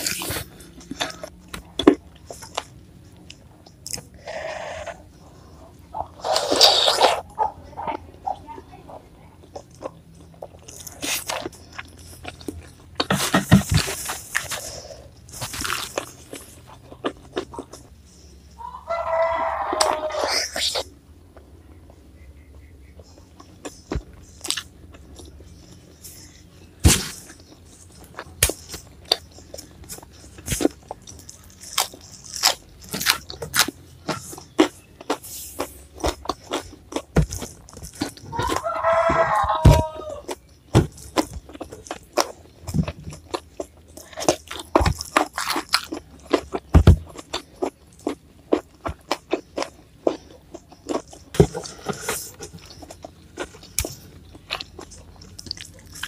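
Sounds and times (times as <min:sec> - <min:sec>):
crunching raw vegetables: 0:00.0 - 0:08.1, 0:09.4 - 0:56.0
rooster crowing: 0:18.6 - 0:20.3, 0:38.3 - 0:40.4.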